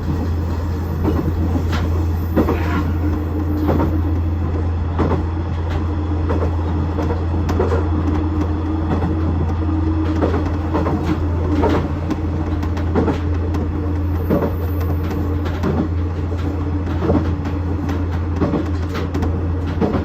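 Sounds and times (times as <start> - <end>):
diesel railcar engine drone: 0.0 - 20.0
wheels clacking on rails: 0.0 - 20.0.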